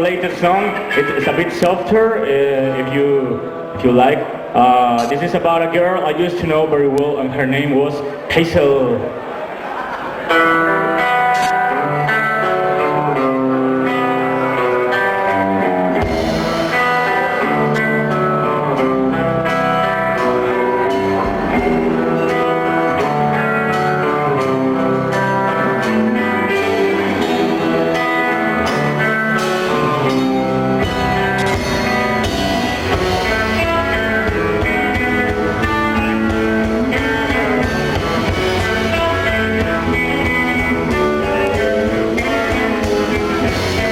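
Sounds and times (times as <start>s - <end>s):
guitars: 0.0s - 43.9s
live rock band playing: 9.2s - 43.9s.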